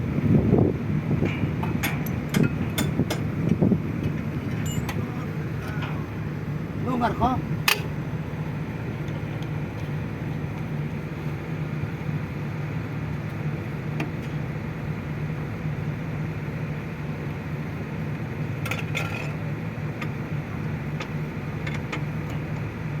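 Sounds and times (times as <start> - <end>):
engine running steadily: 0.0 - 23.0
metallic clinks: 4.5 - 5.1.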